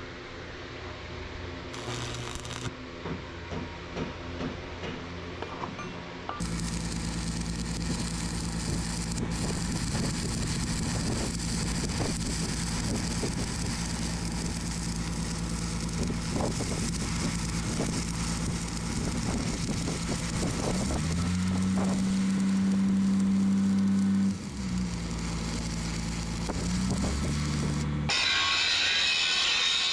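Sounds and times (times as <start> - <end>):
motor running steadily: 6.4 - 28.1.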